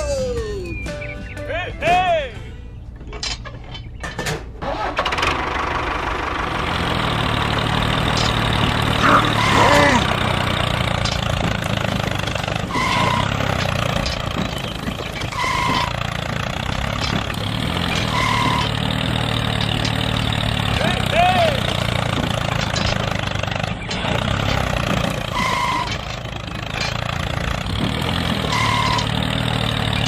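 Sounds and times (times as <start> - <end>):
small motor humming: 6.5 - 30.0
short beeps: 28.5 - 29.1.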